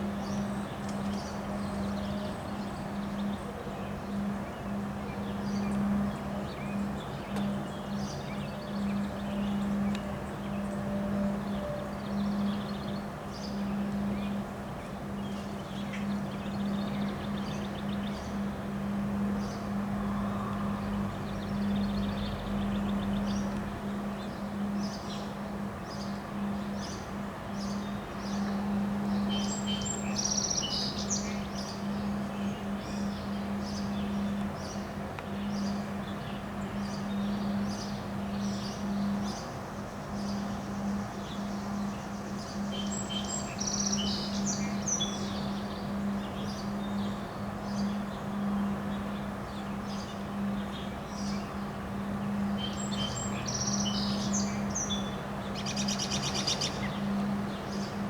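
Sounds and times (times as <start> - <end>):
birds chirping: 19.2 - 58.0.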